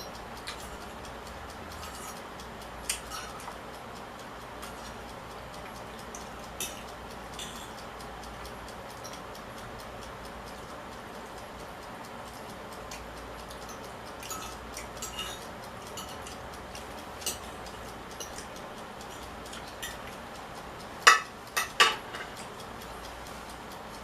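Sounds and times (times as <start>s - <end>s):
shells and cutlery clicking: 1.8s - 2.2s, 2.9s - 3.6s, 6.0s - 7.8s, 12.9s - 20.1s, 21.0s - 22.6s.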